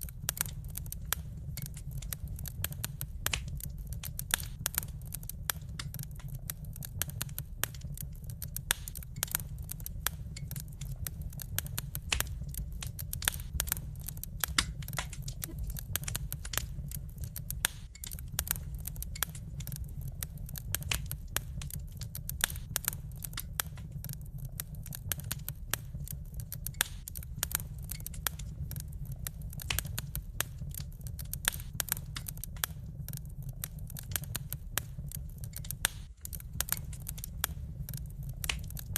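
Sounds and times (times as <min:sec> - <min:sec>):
low rumble: 0:00.0 - 0:38.9
wood fire crackling and popping: 0:00.0 - 0:38.9.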